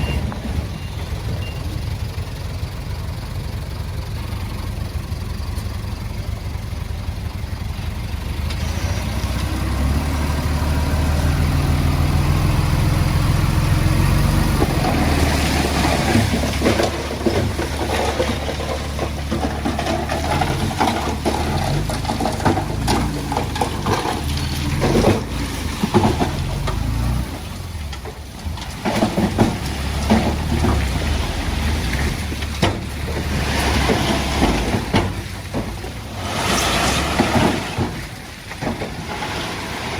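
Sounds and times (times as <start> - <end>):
tracks clanking over stone: 0.0 - 2.5, 13.7 - 39.9
bulldozer diesel engine: 0.0 - 39.9.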